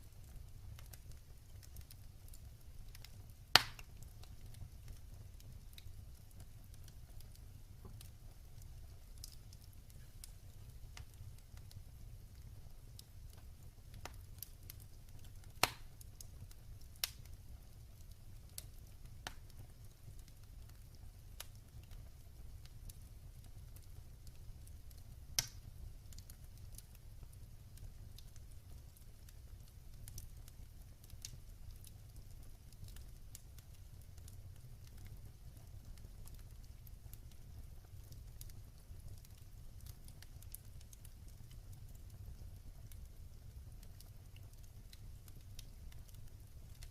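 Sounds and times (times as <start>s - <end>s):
low rumble of burning fire: 0.0s - 46.9s
wood fire crackling: 0.0s - 46.9s.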